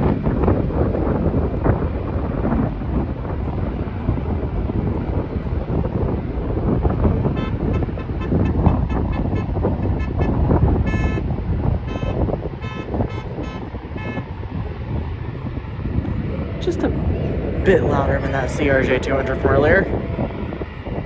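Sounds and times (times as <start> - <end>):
jet engines rumbling: 0.0 - 21.0
wind buffeting microphone: 0.0 - 21.0
short high-pitched beeps: 10.9 - 11.2, 11.9 - 14.2.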